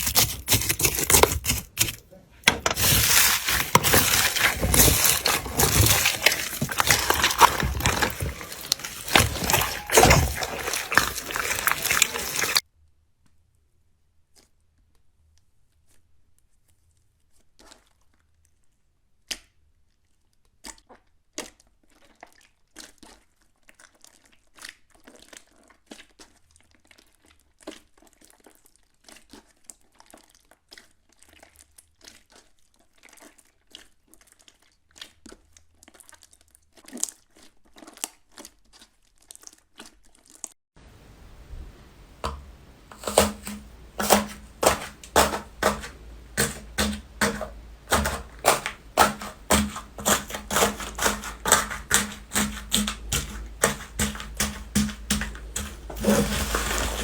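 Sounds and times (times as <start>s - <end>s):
slime crackling and popping: 0.0s - 2.0s, 2.7s - 12.6s, 42.2s - 57.0s.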